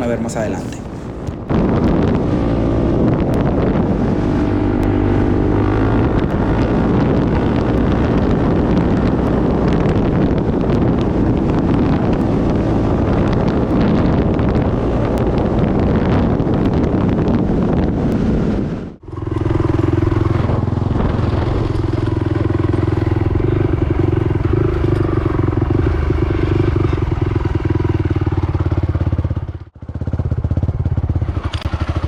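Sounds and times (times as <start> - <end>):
quad engine accelerating: 0.0 - 32.0
wind buffeting microphone: 0.0 - 32.0.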